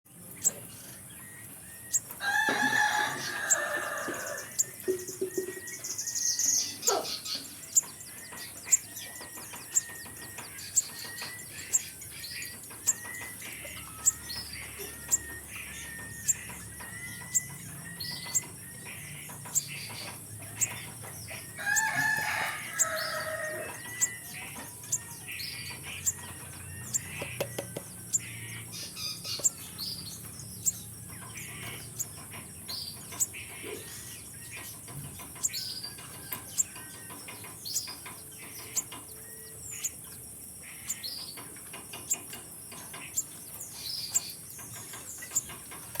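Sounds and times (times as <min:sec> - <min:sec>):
bird high sharp chip calls: 0:01.8 - 0:05.6, 0:06.4 - 0:30.0.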